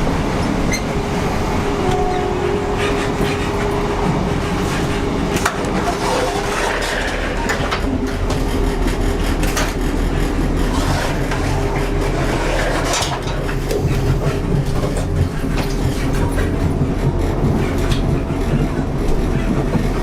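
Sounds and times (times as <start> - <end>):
passenger train rumbling: 0.0 - 20.0.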